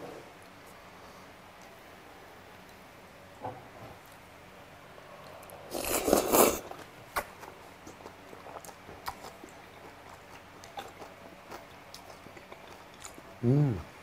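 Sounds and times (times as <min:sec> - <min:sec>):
faint chewing: 0:05.2 - 0:13.4.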